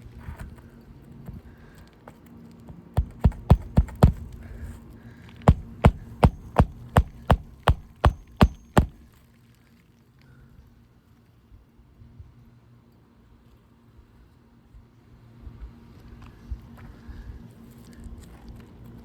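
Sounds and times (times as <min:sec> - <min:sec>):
hammer striking roofing nail: 0:03.0 - 0:04.4, 0:05.5 - 0:09.0.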